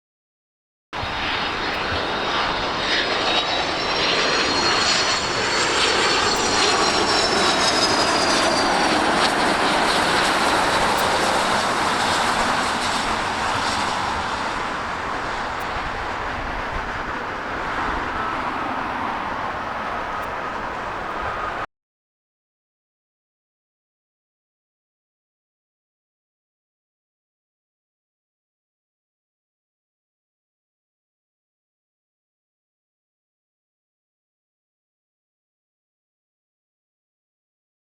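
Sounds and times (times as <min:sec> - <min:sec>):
jet airliner passing overhead: 0:01.0 - 0:21.7.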